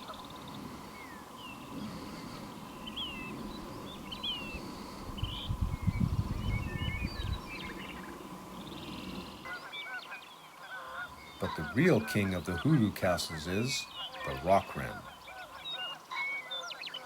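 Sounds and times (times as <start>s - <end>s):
small birds chirping: 0.0s - 17.0s
wind on microphone: 1.6s - 9.5s.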